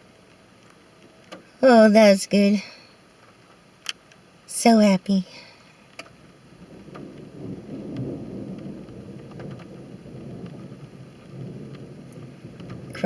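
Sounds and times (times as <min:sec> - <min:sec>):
thunder rumbling: 0:06.4 - 0:13.0.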